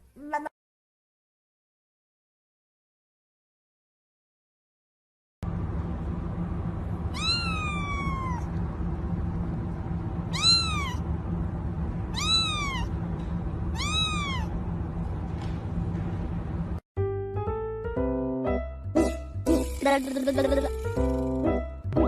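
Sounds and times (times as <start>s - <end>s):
low background rumble: 5.4s - 16.8s
cat meowing: 7.1s - 8.6s, 10.3s - 11.0s, 12.1s - 13.0s, 13.7s - 14.6s.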